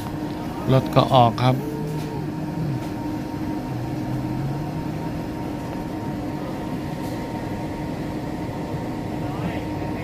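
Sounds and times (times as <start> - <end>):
train carriage running noise: 0.0 - 10.0
low hum: 0.1 - 8.2
high steady tone: 0.7 - 6.8.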